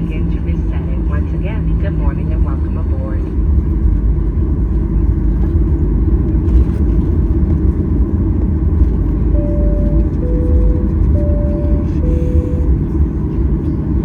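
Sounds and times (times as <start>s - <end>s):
airplane cabin engine rumble: 0.0s - 14.0s
steady tone: 9.3s - 13.5s.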